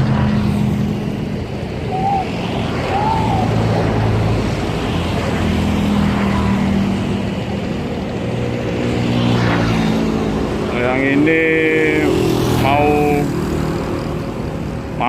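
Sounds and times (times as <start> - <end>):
water noise: 0.0 - 8.0
wind: 0.0 - 15.0.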